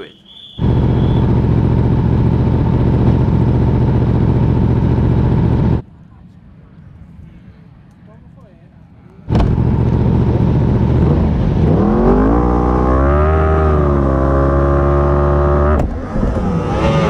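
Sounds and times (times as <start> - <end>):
racing motorcycle engines revving: 0.0 - 5.8, 9.3 - 17.0.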